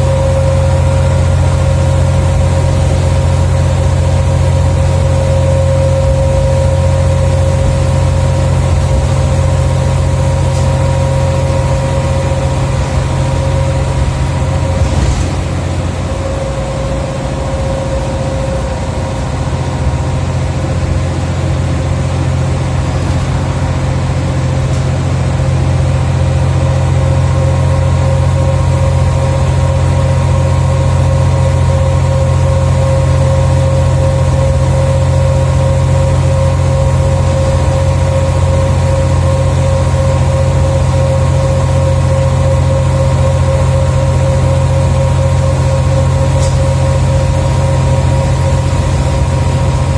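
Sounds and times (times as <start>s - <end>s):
bus engine droning: 0.0s - 49.9s
steady high tone: 11.1s - 21.1s.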